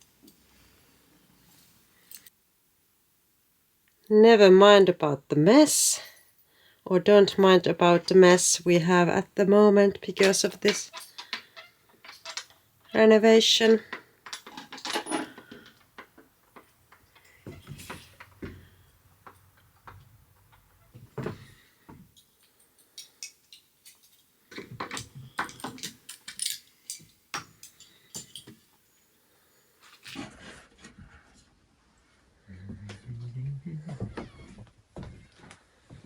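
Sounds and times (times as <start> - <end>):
metal door hardware clicking: 10.2 - 12.6.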